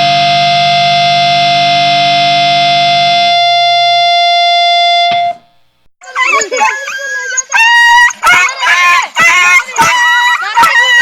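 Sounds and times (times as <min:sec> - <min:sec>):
harsh noise drone: 0:00.0 - 0:05.4.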